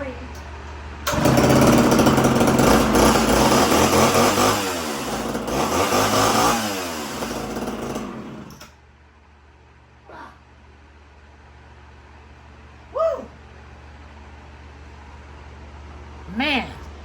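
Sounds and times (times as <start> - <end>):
chainsaw revving: 1.1 - 8.7.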